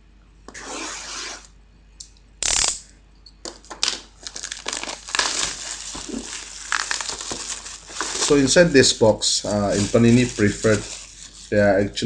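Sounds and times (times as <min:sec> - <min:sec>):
sharp scraping: 0:00.5 - 0:01.5, 0:05.2 - 0:11.8
cardboard packaging rustling: 0:03.6 - 0:11.7.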